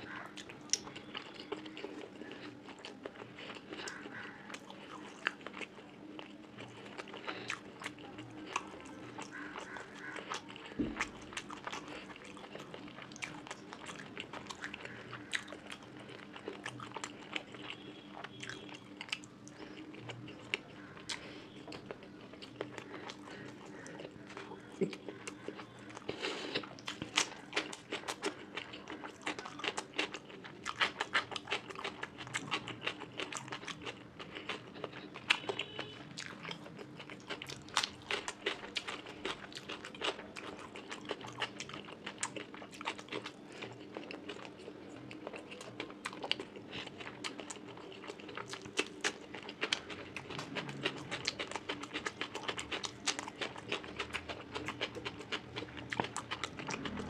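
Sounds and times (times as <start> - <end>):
person chewing with wet mouth clicks: 0.3 - 57.0.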